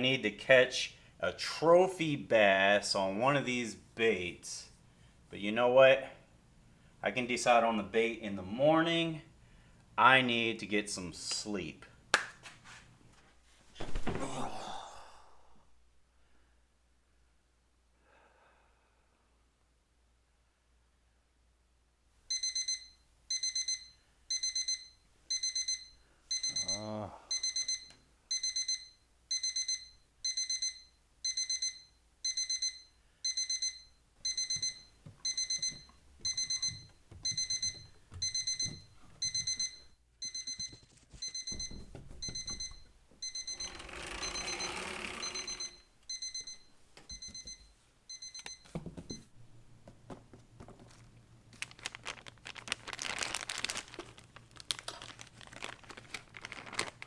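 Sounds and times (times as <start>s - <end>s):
alarm clock beeping: 22.3s - 48.7s
rustling: 50.8s - 57.0s.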